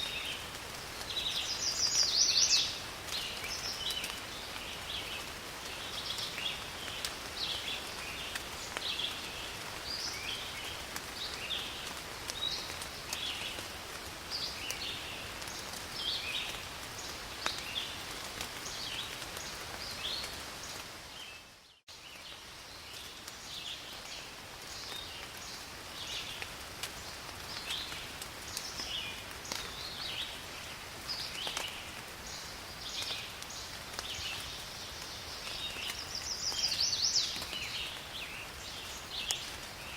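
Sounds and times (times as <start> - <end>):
rain falling in forest: 0.0 - 39.9.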